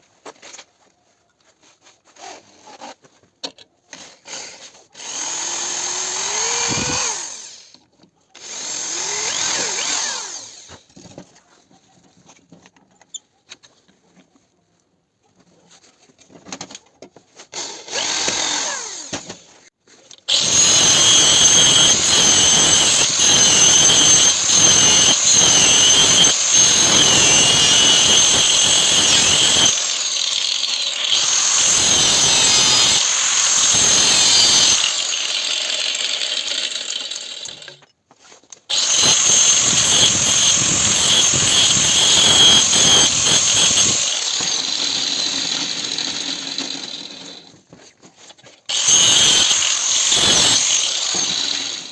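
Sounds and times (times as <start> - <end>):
power tool whining on steel: 5.0 - 7.8, 8.4 - 10.9, 20.3 - 37.9, 38.7 - 47.6, 48.7 - 51.9.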